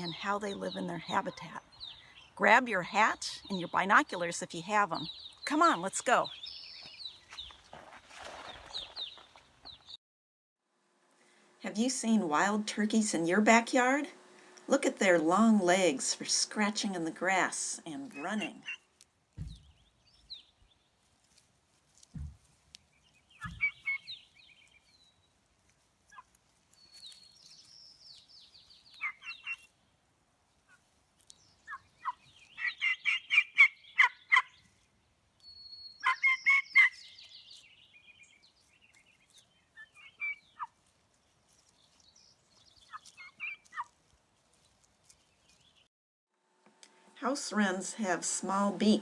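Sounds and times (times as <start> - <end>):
turkeys gobbling: 31.6 - 34.6, 36.0 - 37.0, 39.8 - 40.8, 42.8 - 44.0.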